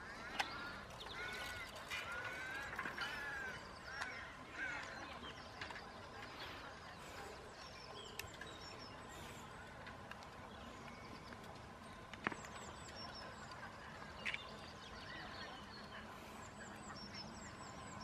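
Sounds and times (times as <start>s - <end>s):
birds honking calls: 0.0s - 5.6s.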